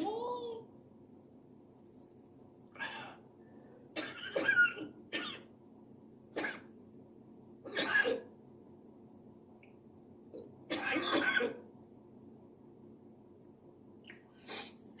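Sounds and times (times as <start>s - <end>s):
parrot mimicking coughing: 4.0s - 5.5s, 7.7s - 8.3s, 10.7s - 11.6s.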